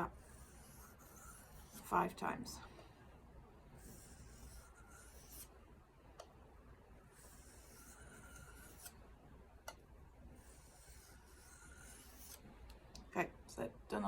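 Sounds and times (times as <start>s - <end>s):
knife scraping on whetstone: 0.0s - 2.0s, 3.8s - 5.5s, 7.2s - 9.0s, 10.4s - 12.4s.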